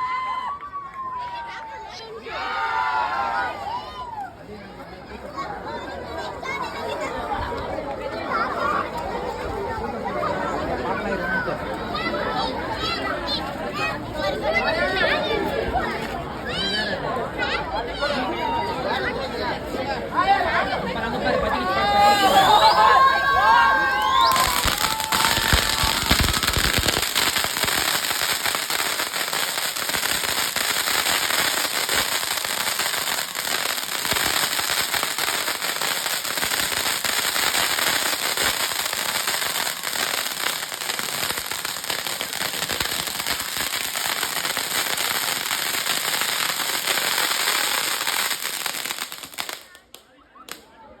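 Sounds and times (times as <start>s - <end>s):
fireworks crackling: 21.8s - 50.6s.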